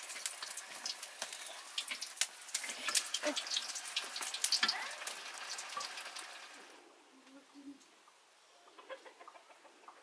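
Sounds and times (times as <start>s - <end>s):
dough deep-frying in hot fat: 0.0s - 6.8s.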